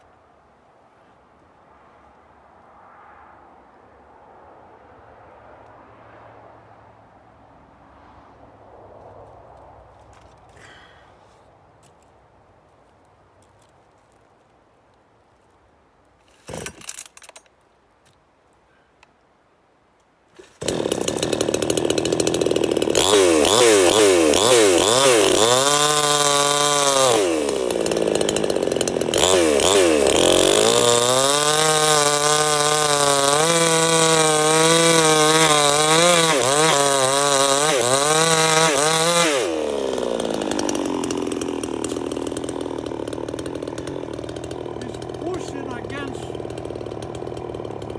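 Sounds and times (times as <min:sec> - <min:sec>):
chainsaw starting and revving: 0:16.2 - 0:17.3, 0:20.4 - 0:47.9.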